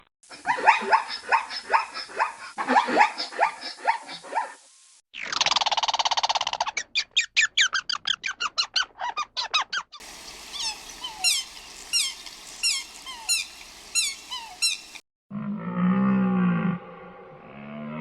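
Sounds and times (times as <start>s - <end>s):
background hiss: 0.4s - 5.0s, 10.0s - 15.0s
squeaky animal chirps: 5.2s - 15.0s.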